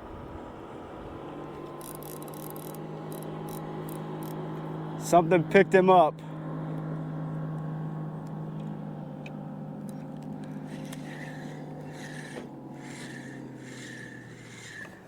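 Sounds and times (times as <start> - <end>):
fishing reel drag screaming: 1.7 - 4.4, 10.5 - 15.0.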